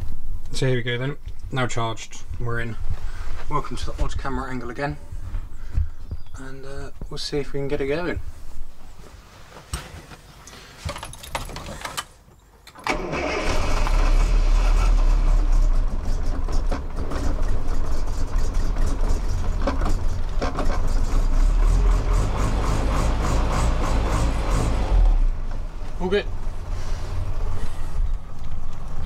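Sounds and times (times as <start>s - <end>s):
engine starting and idling: 12.8s - 25.2s.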